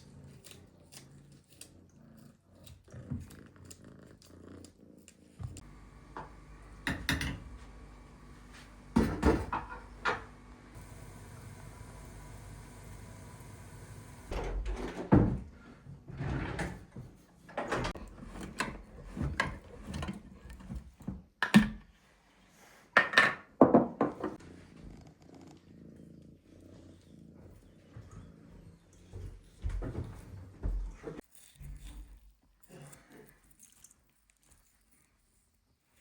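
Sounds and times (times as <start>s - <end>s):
objects knocking and thudding: 8.9s - 10.3s, 14.3s - 15.5s.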